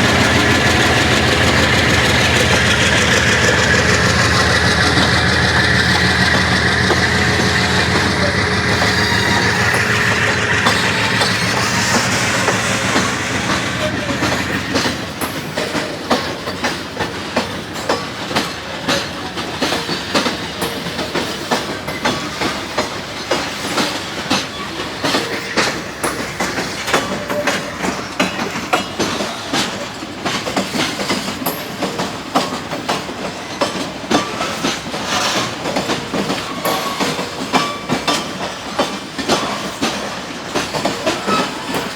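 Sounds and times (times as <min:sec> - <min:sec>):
locomotive engine drone: 0:00.0 - 0:16.1
train wheels clickety-clack: 0:00.0 - 0:41.9.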